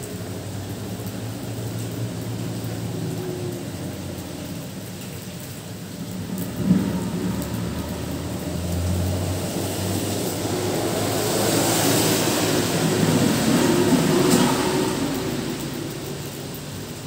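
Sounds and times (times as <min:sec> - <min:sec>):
heavy rain on road and foliage: 0:00.0 - 0:17.0.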